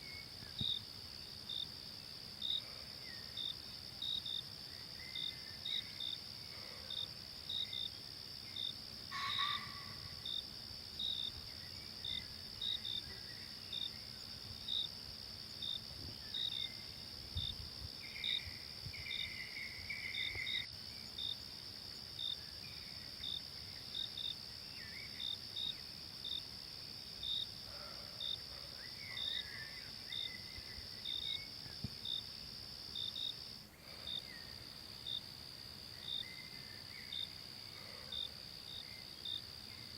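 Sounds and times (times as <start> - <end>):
high insect chirps: 0.0 - 39.9
insect drone: 0.0 - 39.9.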